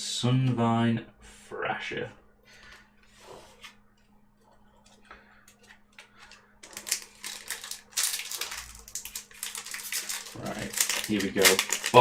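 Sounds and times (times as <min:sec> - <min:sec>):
foil wrapper crinkling: 0:06.2 - 0:12.0.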